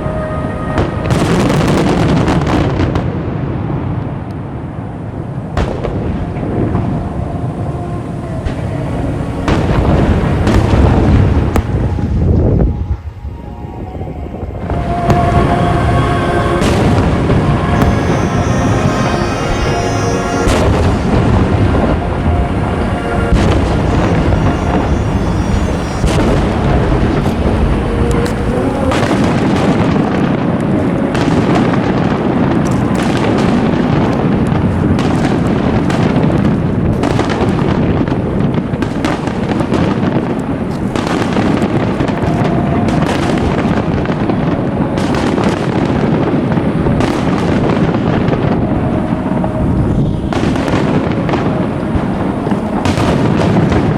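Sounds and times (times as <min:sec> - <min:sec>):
music playing: 0:00.0 - 0:02.2, 0:06.3 - 0:30.0
fireworks booming and crackling: 0:00.0 - 0:53.9.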